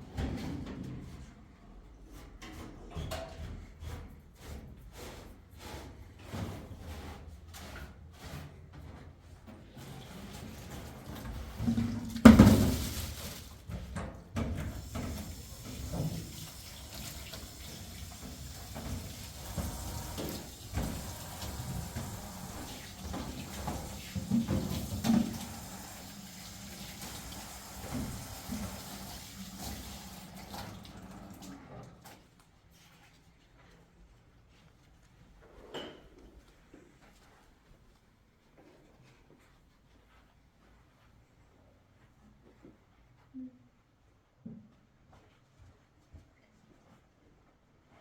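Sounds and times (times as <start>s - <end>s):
water running: 11.1s - 13.8s, 14.6s - 31.8s.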